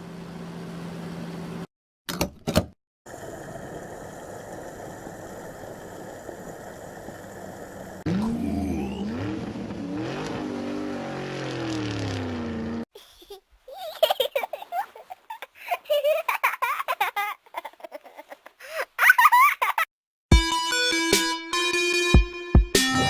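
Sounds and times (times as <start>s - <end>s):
engine running hum: 0.0s - 1.7s, 3.1s - 12.8s
cartoon engine revving: 7.0s - 12.8s.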